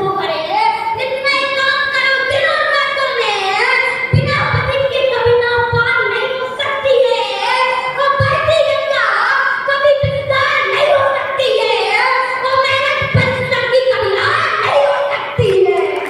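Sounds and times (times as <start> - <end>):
child chanting verse: 0.0 - 16.0.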